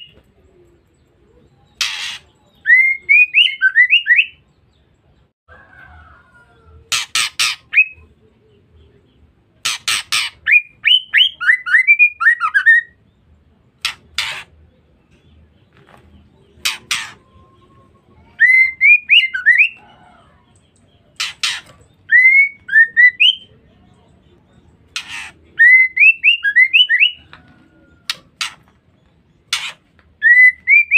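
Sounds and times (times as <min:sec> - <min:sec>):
bird rasping chatter: 0:01.7 - 0:02.4, 0:06.9 - 0:07.9, 0:09.6 - 0:10.6, 0:13.8 - 0:14.7, 0:16.5 - 0:17.8, 0:21.1 - 0:22.2, 0:24.8 - 0:25.6, 0:27.0 - 0:30.9.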